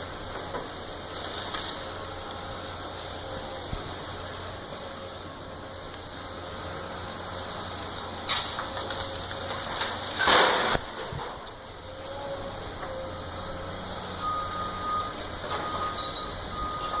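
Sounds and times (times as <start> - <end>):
demolition machinery engine drone: 0.0 - 17.0
reversing alarm beeping: 13.7 - 17.0.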